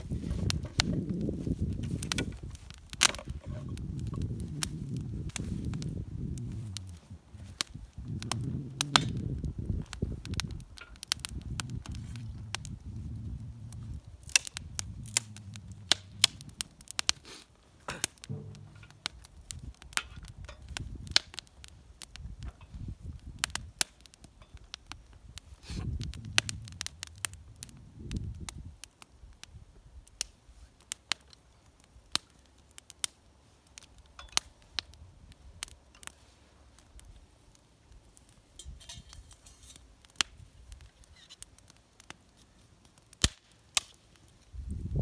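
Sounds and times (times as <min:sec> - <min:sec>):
low rumbling: 0:00.0 - 0:10.6, 0:11.2 - 0:17.2, 0:18.2 - 0:20.3, 0:25.8 - 0:28.4
wood fire crackling and popping: 0:00.0 - 0:45.0.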